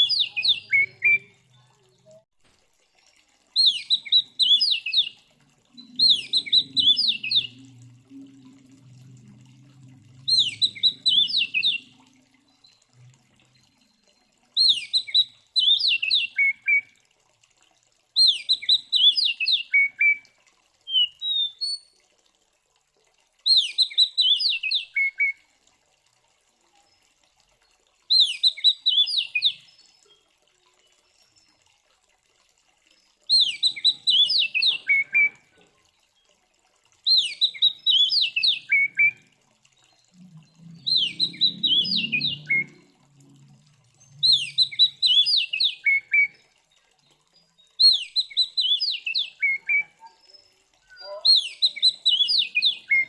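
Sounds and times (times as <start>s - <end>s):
bird singing whistled notes: 0.0s - 1.5s, 3.6s - 5.2s, 5.8s - 7.6s, 10.3s - 12.0s, 14.6s - 16.8s, 18.2s - 20.2s, 23.5s - 25.4s, 28.1s - 30.2s, 33.3s - 35.4s, 37.1s - 39.2s, 40.2s - 42.8s, 44.0s - 46.4s, 47.8s - 53.0s.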